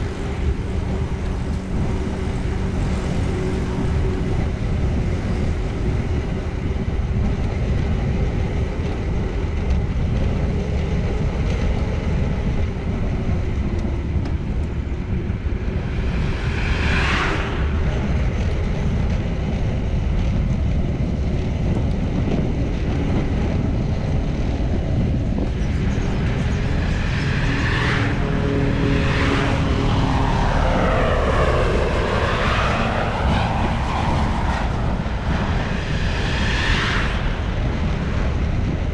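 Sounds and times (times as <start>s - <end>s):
vehicles passing by: 0.0s - 7.2s, 12.1s - 19.2s, 24.4s - 38.9s
wind rumble on microphone: 0.0s - 38.9s.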